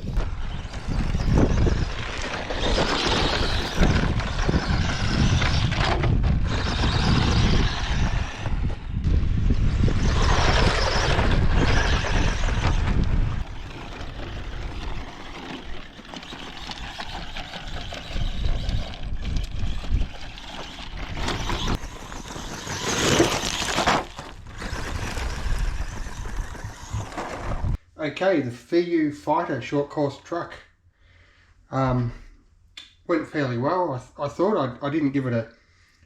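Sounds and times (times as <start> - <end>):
wind rumble on microphone: 0.0 - 22.2, 24.3 - 27.8
rc truck motor and tyres: 0.0 - 27.8.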